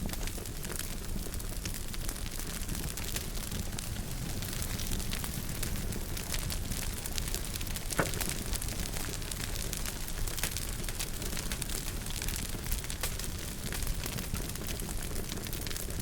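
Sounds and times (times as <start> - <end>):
wood fire crackling: 0.0 - 16.0
loud pop of fire: 7.2 - 9.7.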